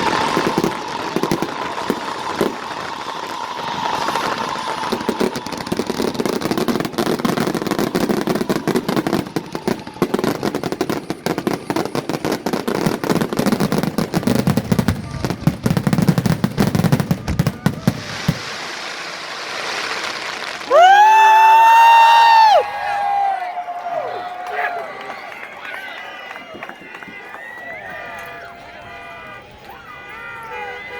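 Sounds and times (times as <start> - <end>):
fireworks bangs and crackles: 0.0 - 22.6.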